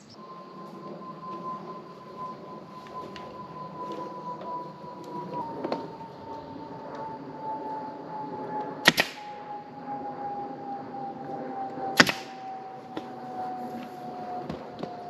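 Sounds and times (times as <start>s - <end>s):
air stapler firing: 8.9s - 9.3s, 12.0s - 12.4s.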